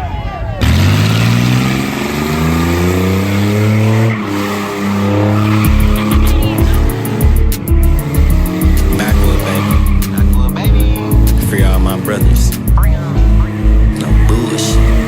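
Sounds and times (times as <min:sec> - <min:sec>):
car engine revving: 0:00.0 - 0:15.0
tires squealing: 0:00.0 - 0:15.0
deep thudding bass beat: 0:05.6 - 0:15.0.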